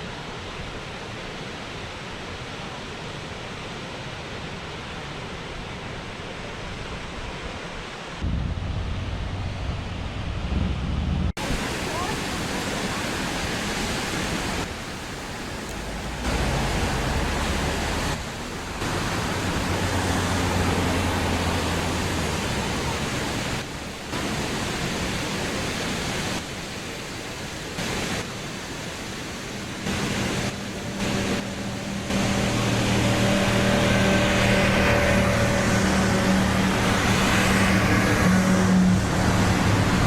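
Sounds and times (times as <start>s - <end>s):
waterfall rushing: 11.4s - 40.0s.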